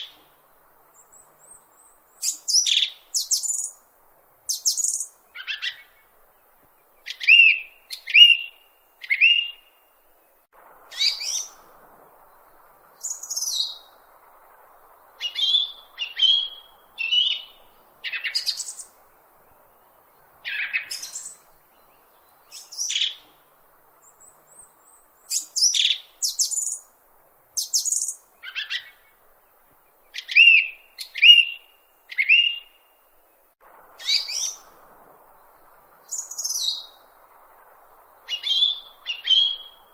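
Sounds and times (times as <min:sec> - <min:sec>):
bird chirping: 0:00.9 - 0:03.8, 0:04.5 - 0:26.9, 0:27.5 - 0:39.9.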